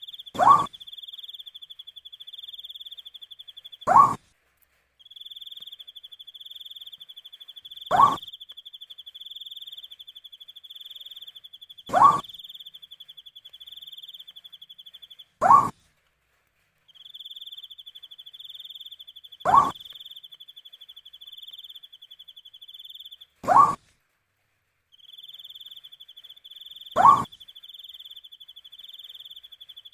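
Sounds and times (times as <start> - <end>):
owl call rising in pitch: 0.4 - 0.8, 7.9 - 8.4, 27.0 - 27.4.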